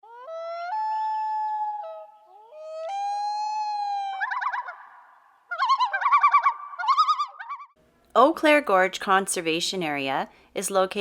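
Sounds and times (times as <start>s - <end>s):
wailing call with trill: 0.0s - 7.8s.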